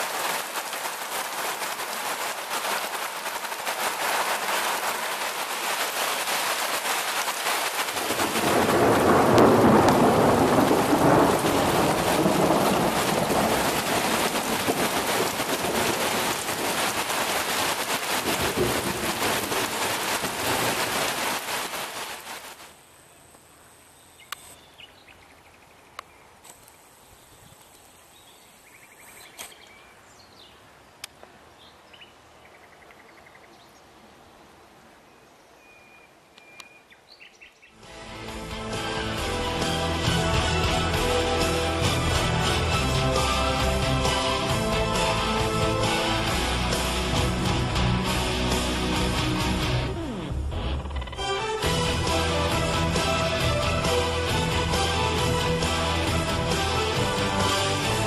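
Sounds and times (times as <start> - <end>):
thunder rumbling: 0.0 - 22.3
heavy rain downpour: 0.0 - 23.6, 37.8 - 58.0.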